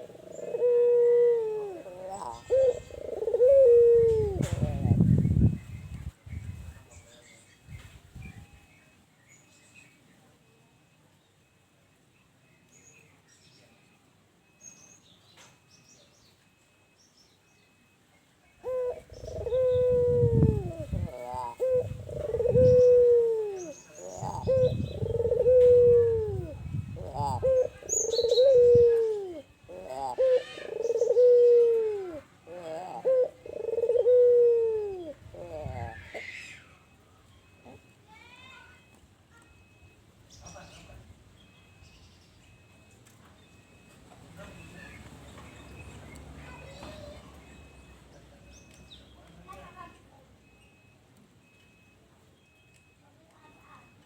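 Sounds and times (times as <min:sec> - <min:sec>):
dove cooing: 0:00.0 - 0:05.6, 0:18.6 - 0:37.9
small birds chirping: 0:11.2 - 0:34.4, 0:35.0 - 0:54.0.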